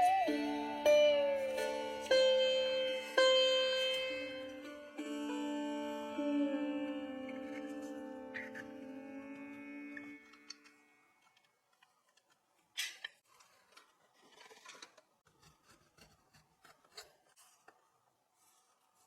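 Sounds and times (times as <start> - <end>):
soft rubbing: 13.3 - 19.0.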